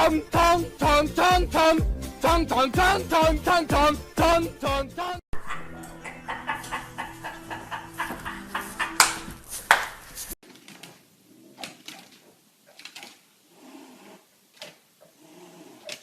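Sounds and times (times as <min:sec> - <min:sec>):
music with steady beat: 0:00.0 - 0:05.2.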